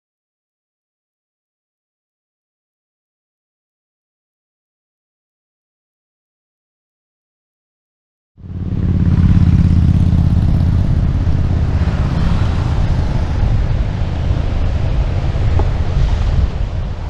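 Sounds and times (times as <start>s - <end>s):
scooter engine: 8.4s - 16.2s
road noise: 8.4s - 17.0s
wind rushing over microphone: 8.4s - 17.0s.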